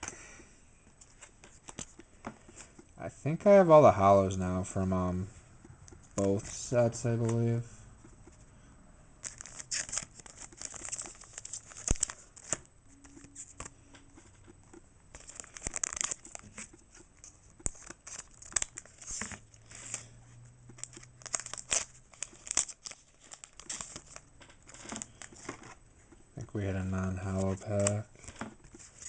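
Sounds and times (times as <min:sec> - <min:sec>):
cards rustling and clicking: 0:01.0 - 0:02.9, 0:05.9 - 0:08.4, 0:09.2 - 0:29.0
foil wrapper crinkling and tearing: 0:09.2 - 0:13.7, 0:15.1 - 0:16.8, 0:17.5 - 0:25.8, 0:26.5 - 0:29.0.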